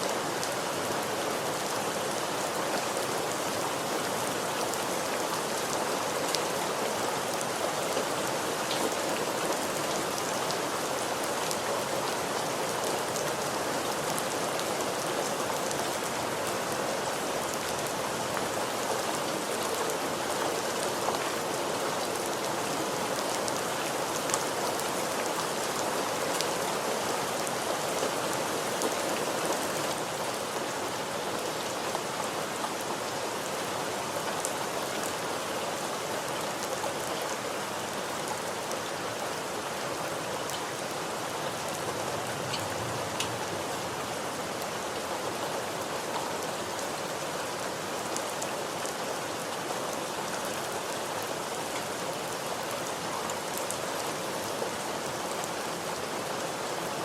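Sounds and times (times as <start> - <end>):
steady rain hiss: 0.0 - 57.0
rain drop ticks: 42.5 - 43.4.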